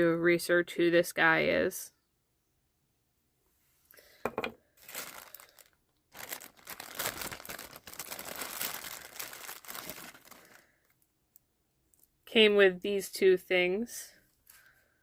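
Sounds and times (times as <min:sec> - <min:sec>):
packaging crinkling: 0:04.8 - 0:11.0.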